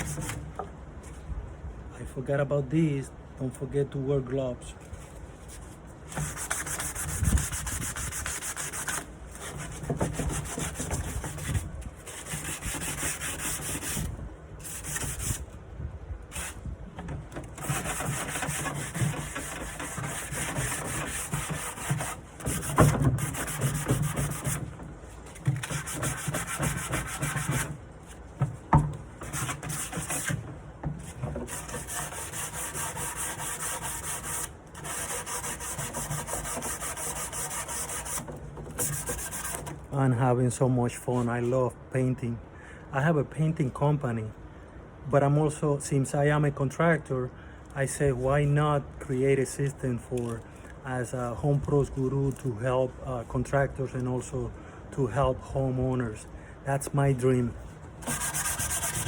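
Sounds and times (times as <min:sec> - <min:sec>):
sandpaper rubbing on wood: 0:00.0 - 0:00.4, 0:05.5 - 0:15.4, 0:16.3 - 0:16.6, 0:17.6 - 0:27.8, 0:29.2 - 0:30.4, 0:31.0 - 0:39.7, 0:58.0 - 0:59.0.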